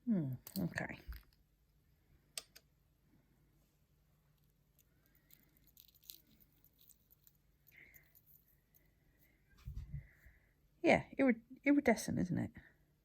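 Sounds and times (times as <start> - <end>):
quiet small clicks: 2.3 - 2.7.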